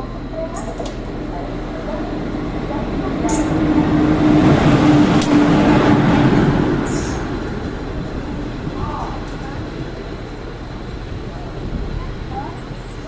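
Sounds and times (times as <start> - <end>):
train rumbling past: 0.0 - 13.0.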